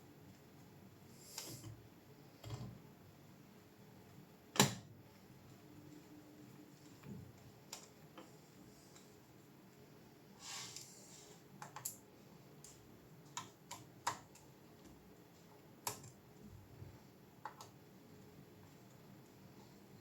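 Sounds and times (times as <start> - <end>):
soft hiss: 5.1 - 13.0.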